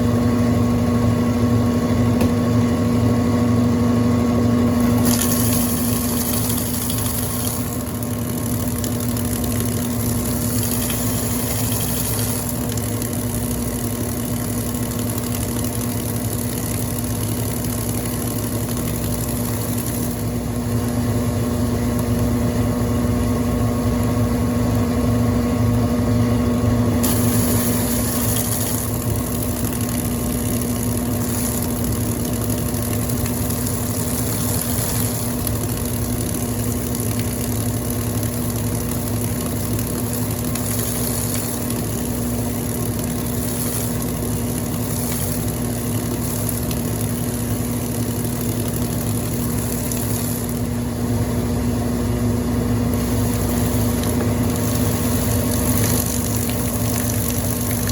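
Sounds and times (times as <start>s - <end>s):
washing machine motor hum: 0.0s - 57.9s
hiss: 27.0s - 37.4s, 38.4s - 50.8s, 52.9s - 57.9s.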